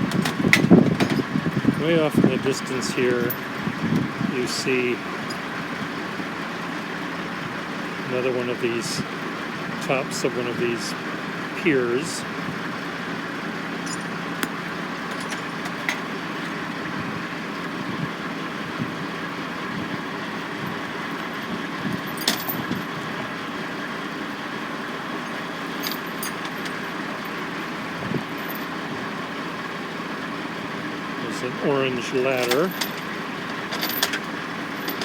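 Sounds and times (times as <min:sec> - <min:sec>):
construction machinery running: 0:00.0 - 0:35.0
low hum: 0:13.8 - 0:17.3.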